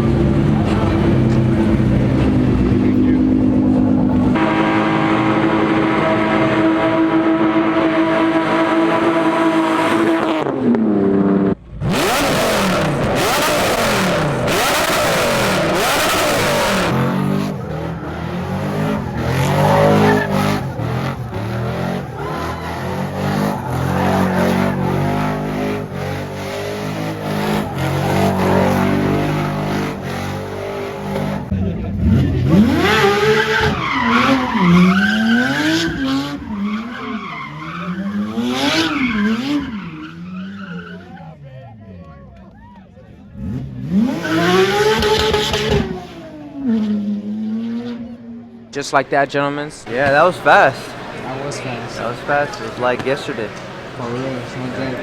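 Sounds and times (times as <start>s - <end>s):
car engines revving: 0.0s - 55.0s
tire squeal: 11.9s - 31.5s, 32.4s - 41.5s, 43.8s - 47.1s.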